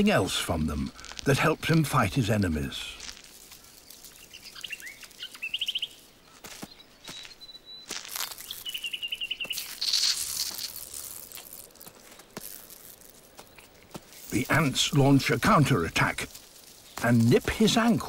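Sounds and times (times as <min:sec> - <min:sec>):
bird calling: 0:00.8 - 0:10.1.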